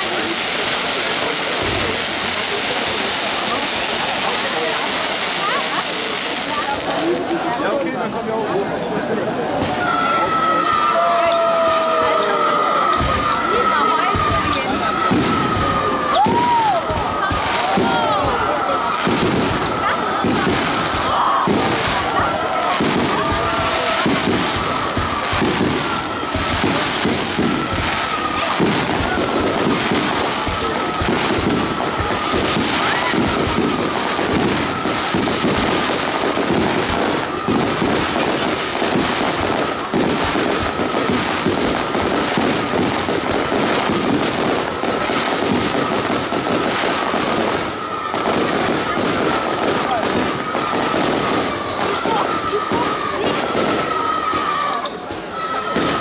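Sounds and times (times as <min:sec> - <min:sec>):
fireworks popping and banging: 0:00.0 - 0:07.9, 0:09.3 - 0:56.0.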